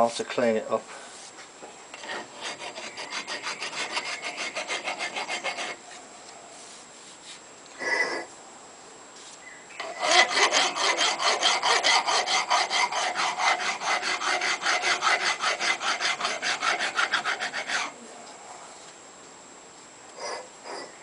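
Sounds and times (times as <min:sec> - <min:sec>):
hand file stroking steel: 0:01.9 - 0:05.8, 0:09.8 - 0:18.0.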